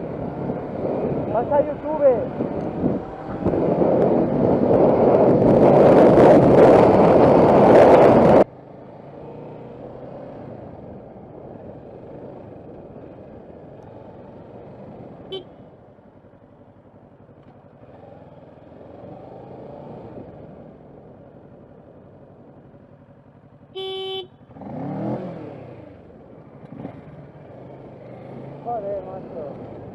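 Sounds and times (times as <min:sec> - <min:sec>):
wind buffeting microphone: 0:00.0 - 0:08.5
road traffic and engines: 0:00.0 - 0:29.9
car horn toot: 0:15.3 - 0:15.6, 0:23.8 - 0:24.4.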